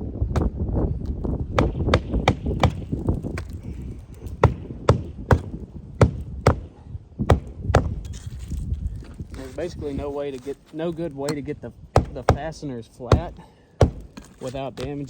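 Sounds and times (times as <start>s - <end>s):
hammer striking nails: 1.6s - 3.6s, 4.3s - 6.7s, 7.3s - 8.0s, 12.0s - 14.9s.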